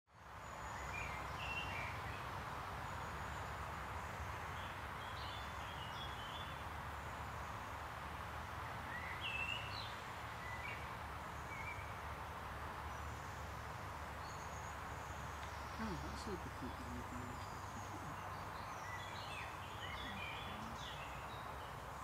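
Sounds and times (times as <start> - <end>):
low outdoor noise: 0.1 - 22.0
birds chirping and singing: 15.4 - 21.6.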